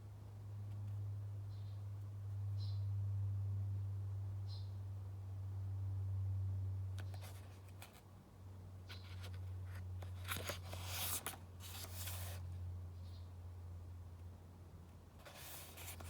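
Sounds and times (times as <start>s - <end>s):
book page turning: 10.0s - 12.4s, 15.2s - 16.0s.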